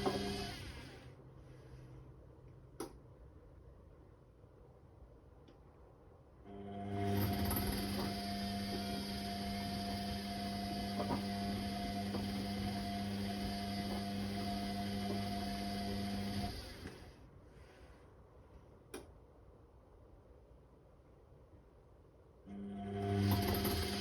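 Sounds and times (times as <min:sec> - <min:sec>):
washing machine hum: 0:00.0 - 0:01.8, 0:06.4 - 0:17.7, 0:22.4 - 0:24.0.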